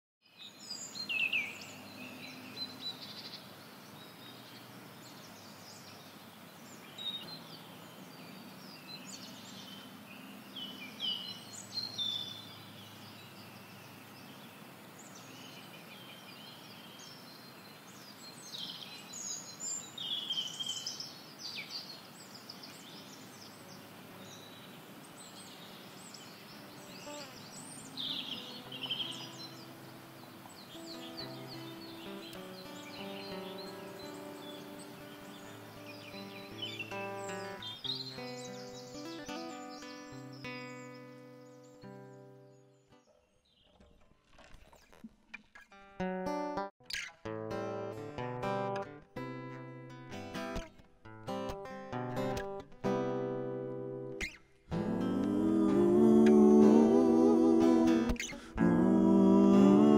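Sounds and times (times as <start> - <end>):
small birds chirping and trilling: 0.3 - 44.0
outdoor hiss: 12.8 - 38.8
faint sustained pitched tones: 54.7 - 59.9.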